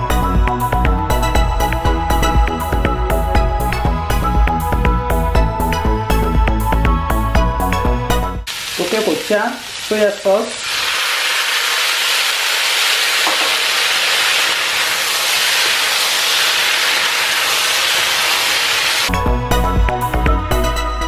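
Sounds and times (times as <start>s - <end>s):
vegetables sizzling in a wok: 8.5s - 19.1s.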